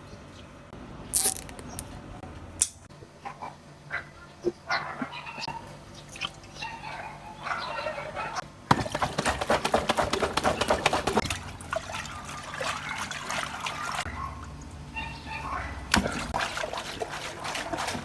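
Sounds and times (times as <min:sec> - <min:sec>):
water pouring and splashing: 0:08.8 - 0:14.8, 0:15.8 - 0:18.0.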